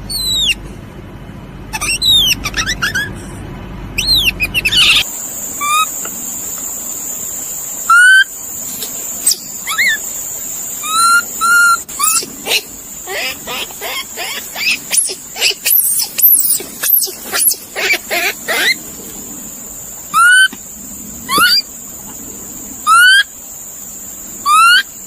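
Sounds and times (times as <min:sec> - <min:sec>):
bird-like chirping calls: 0:00.0 - 0:00.6, 0:01.8 - 0:03.2, 0:04.0 - 0:06.1, 0:07.8 - 0:18.9, 0:20.1 - 0:20.6, 0:21.3 - 0:21.7, 0:22.8 - 0:23.3, 0:24.4 - 0:25.0.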